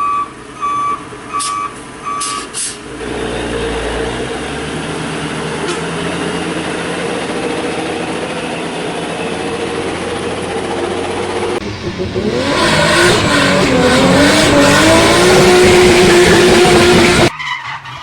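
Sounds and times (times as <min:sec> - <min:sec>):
truck reversing alarm beeping: 0:00.0 - 0:02.7, 0:07.3 - 0:10.8
diesel truck engine under load: 0:00.0 - 0:18.0.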